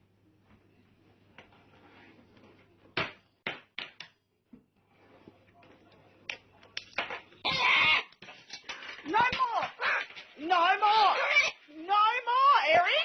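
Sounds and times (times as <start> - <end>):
sharp knocks of hard objects: 3.0 - 4.2.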